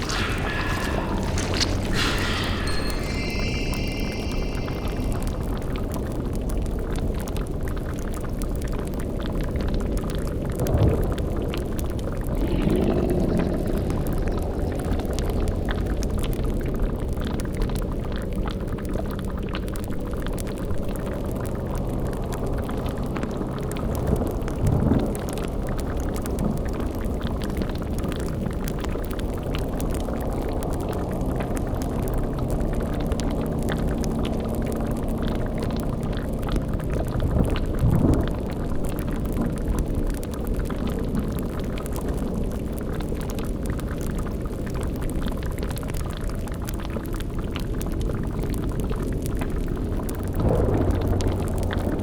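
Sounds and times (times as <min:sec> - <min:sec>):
cauldron bubbling: 0:00.0 - 0:06.4
low rumbling drone: 0:00.0 - 0:06.6, 0:12.2 - 0:16.6.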